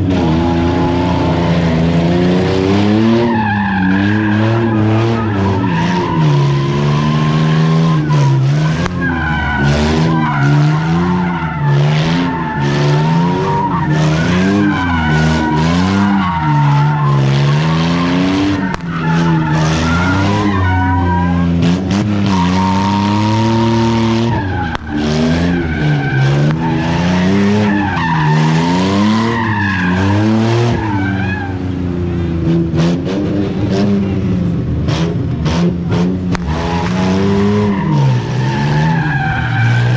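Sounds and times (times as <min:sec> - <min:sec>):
car engine revving: 0:00.0 - 0:39.9
tyres squealing: 0:03.1 - 0:31.6.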